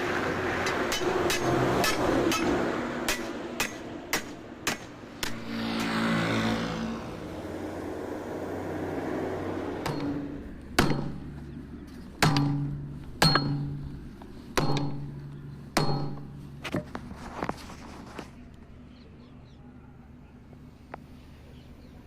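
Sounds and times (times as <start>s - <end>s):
hammer striking steel wheel: 0.5s - 5.6s, 9.8s - 11.4s, 12.1s - 16.9s.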